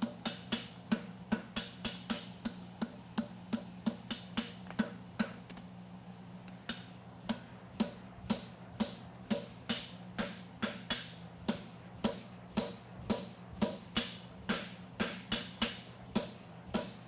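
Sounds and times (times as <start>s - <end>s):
hammer striking steel on anvil: 0.0s - 2.6s, 6.7s - 17.0s.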